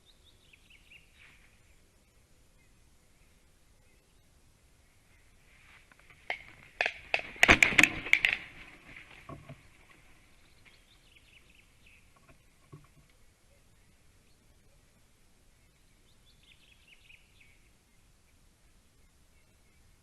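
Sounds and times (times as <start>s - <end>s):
sharp knocks and rustling: 5.7s - 10.8s, 12.0s - 13.1s.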